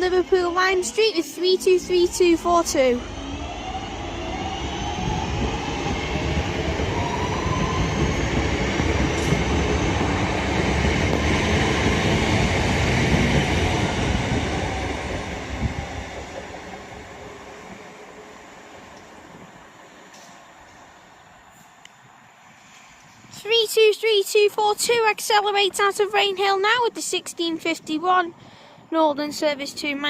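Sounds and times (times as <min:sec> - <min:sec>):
wheels rumbling on rail: 0:00.0 - 0:23.4
train motor whine: 0:01.7 - 0:21.1.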